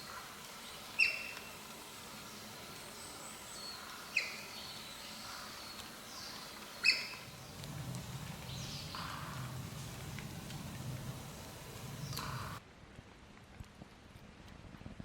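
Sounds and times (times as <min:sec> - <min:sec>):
faint high bird chirps: 0:00.9 - 0:01.6, 0:03.1 - 0:07.4
low hum: 0:05.3 - 0:12.6
bird sharp short calls: 0:06.8 - 0:07.4.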